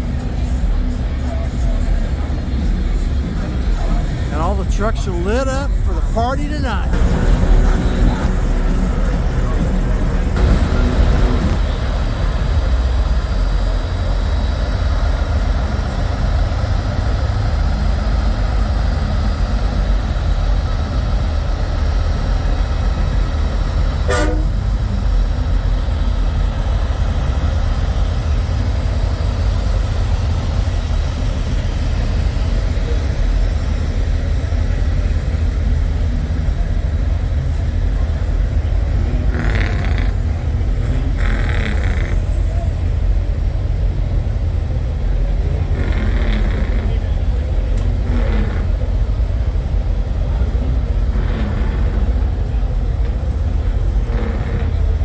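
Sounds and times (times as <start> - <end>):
diesel truck engines idling: 0.0 - 55.0
truck horn toot: 4.3 - 11.6, 24.0 - 24.7.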